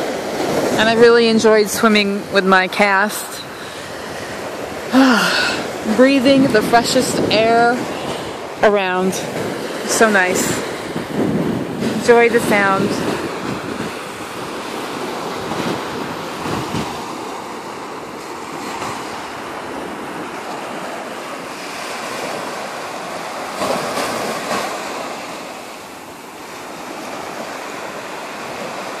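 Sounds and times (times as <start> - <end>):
small waves breaking on beach: 0.0 - 29.0
wind rumble on microphone: 3.9 - 25.1.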